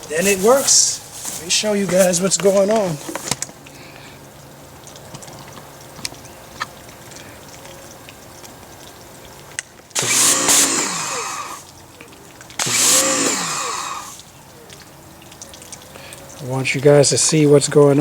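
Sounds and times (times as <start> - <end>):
electric pressure washer motor whine: 0.0 - 3.4, 10.0 - 11.8, 12.5 - 14.3
water jet hissing: 0.0 - 4.6, 9.1 - 18.0.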